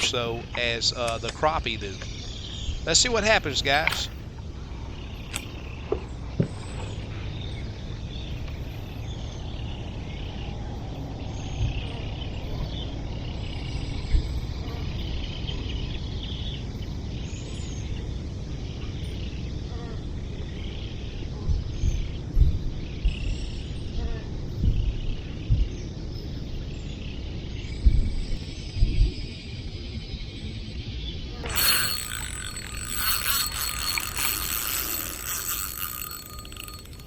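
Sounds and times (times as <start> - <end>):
faint chirps: 31.4 - 37.0
sharp clicks: 31.5 - 37.0.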